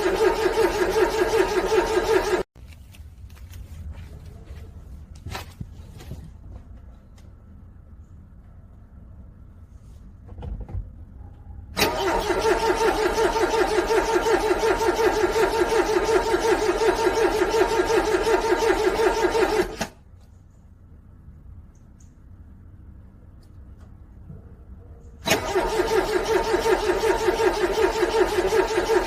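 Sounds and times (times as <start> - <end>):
car starter cranking engine: 0.0 - 2.5, 11.8 - 20.0, 25.2 - 29.0.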